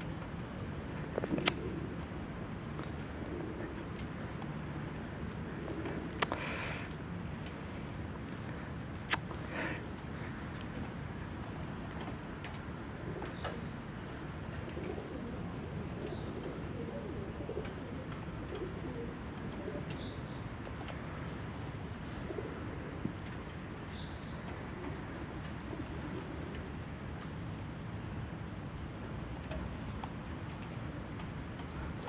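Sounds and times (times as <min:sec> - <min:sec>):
low cooing calls: 0:02.8 - 0:04.3, 0:14.6 - 0:20.2.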